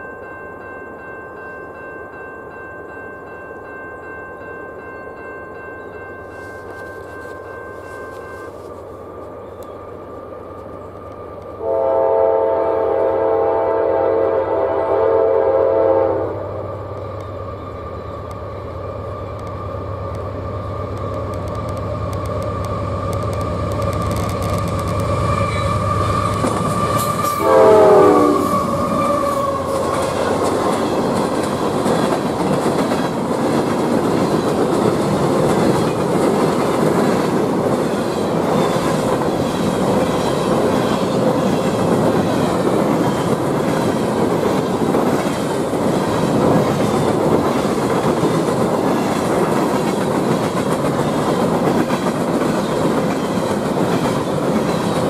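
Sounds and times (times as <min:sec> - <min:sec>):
locomotive horn: 0:11.6 - 0:16.8, 0:25.4 - 0:29.9.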